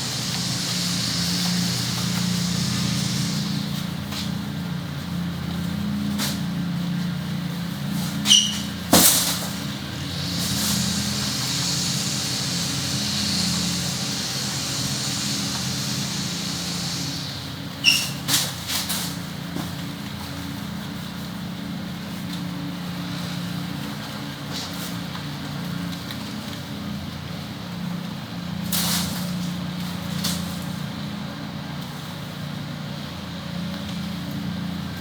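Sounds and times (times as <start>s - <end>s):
running water hissing: 0.0s - 5.4s, 8.2s - 19.2s
steady low hum: 0.0s - 8.2s, 8.8s - 18.3s
brief high squeaks: 8.2s - 8.8s, 10.3s - 18.4s.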